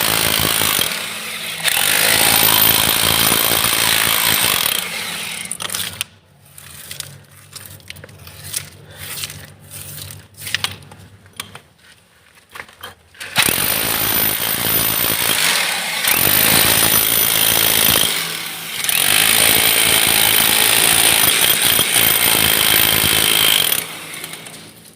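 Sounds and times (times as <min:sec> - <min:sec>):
hammer drill drilling: 0:00.0 - 0:05.8, 0:13.4 - 0:24.7.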